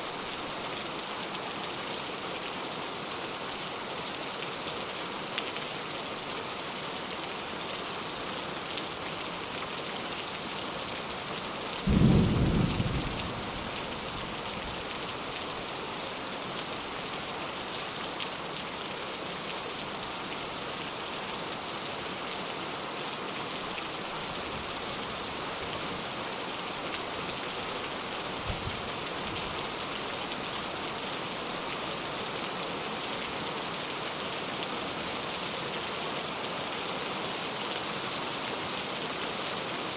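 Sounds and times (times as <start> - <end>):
rain hiss: 0.0 - 39.9
thunder rumble: 11.9 - 14.3.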